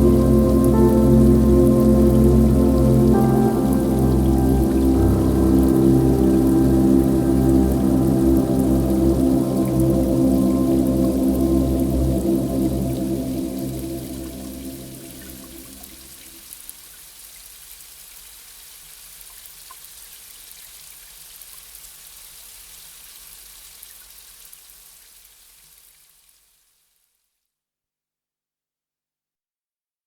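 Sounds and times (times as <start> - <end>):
soft background music: 0.0 - 16.1
steady rain hiss: 0.0 - 26.8.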